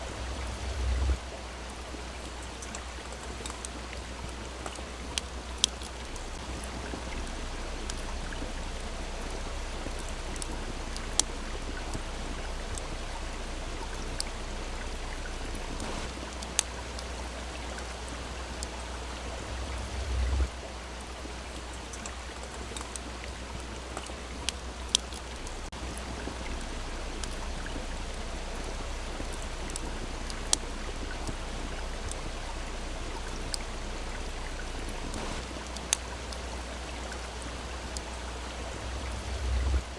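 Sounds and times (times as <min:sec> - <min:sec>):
low rumble: 0:00.0 - 0:01.4, 0:06.0 - 0:16.2, 0:18.8 - 0:20.6, 0:25.2 - 0:35.5, 0:38.6 - 0:39.9
stream flowing: 0:00.0 - 0:39.9
campfire crackling and popping: 0:01.0 - 0:18.8, 0:20.4 - 0:39.9.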